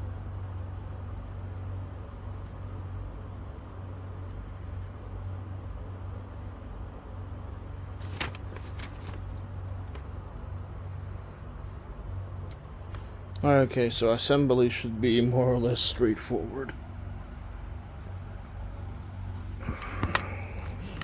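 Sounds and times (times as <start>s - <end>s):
low background hum: 0.0s - 21.0s
paper rustling: 7.7s - 10.2s, 12.5s - 13.3s, 16.6s - 21.0s.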